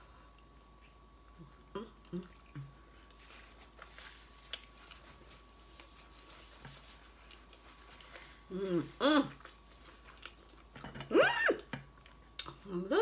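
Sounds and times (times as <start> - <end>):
person chewing food: 0.0 - 8.5, 9.3 - 12.7
paper napkin rustling: 3.2 - 8.4.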